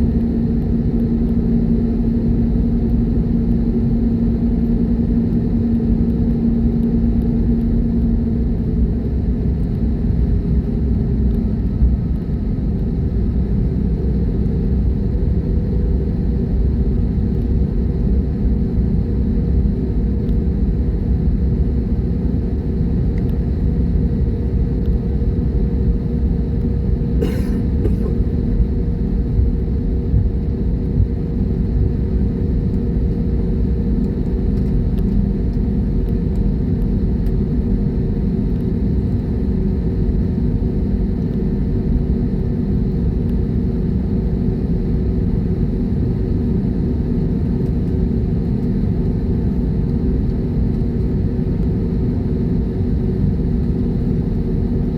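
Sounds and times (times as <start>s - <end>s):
jet engines rumbling: 23.5s - 54.9s.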